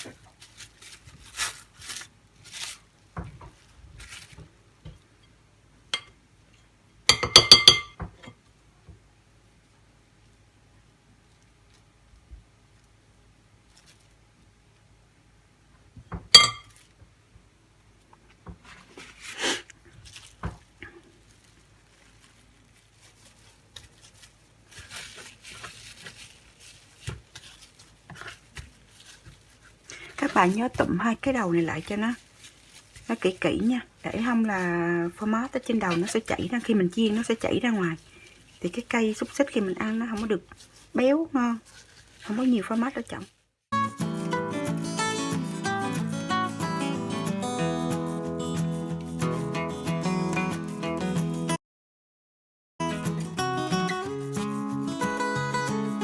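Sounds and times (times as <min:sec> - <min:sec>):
cling film crinkling: 0:00.0 - 0:04.6, 0:11.1 - 0:14.9, 0:17.9 - 0:43.6
soft handling rustles: 0:00.0 - 0:05.4, 0:08.3 - 0:15.0, 0:15.8 - 0:17.2, 0:17.8 - 0:43.6
kitchenware clinking: 0:06.0 - 0:06.2, 0:07.1 - 0:08.4, 0:16.3 - 0:16.8.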